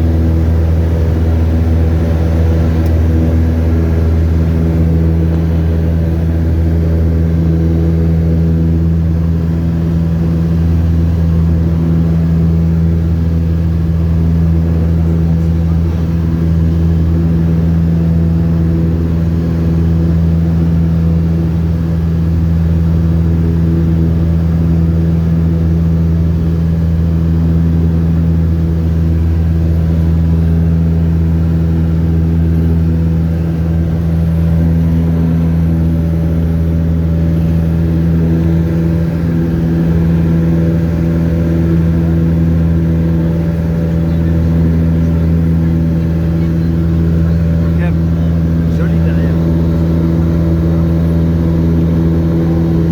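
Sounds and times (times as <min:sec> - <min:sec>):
light aircraft engine droning: 0:00.0 - 0:52.9.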